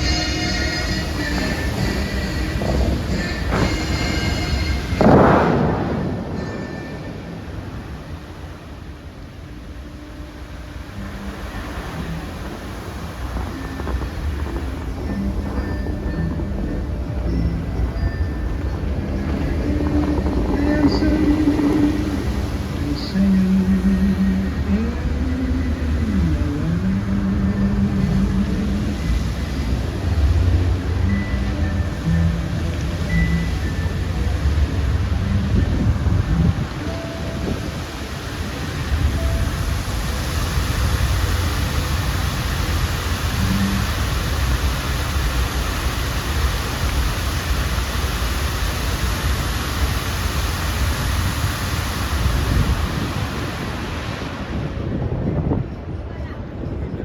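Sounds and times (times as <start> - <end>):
held musical notes over loudspeakers: 0.0 - 8.2
fountain water jets splashing: 0.0 - 55.0
low outdoor rumble: 0.0 - 55.0.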